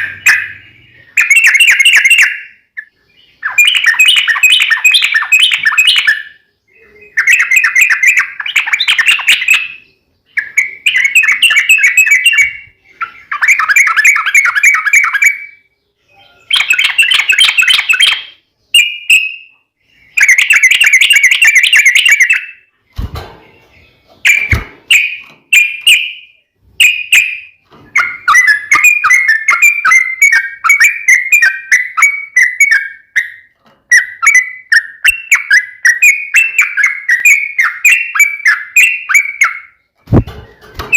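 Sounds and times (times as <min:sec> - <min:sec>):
bird singing bubbly chattering notes: 0:00.0 - 0:15.6.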